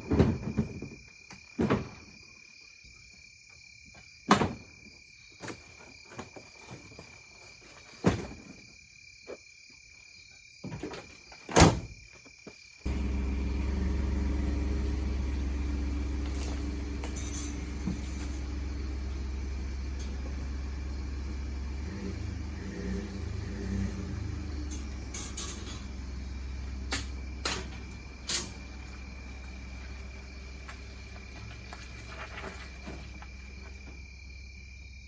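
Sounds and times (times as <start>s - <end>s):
cricket trill: 0.0s - 35.0s
low engine drone: 12.9s - 33.1s.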